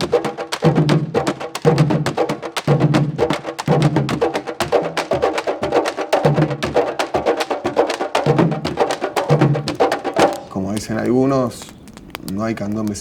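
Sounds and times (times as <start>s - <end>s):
drums played in fast rhythm: 0.0s - 10.4s
deep low drum tones: 8.5s - 13.0s.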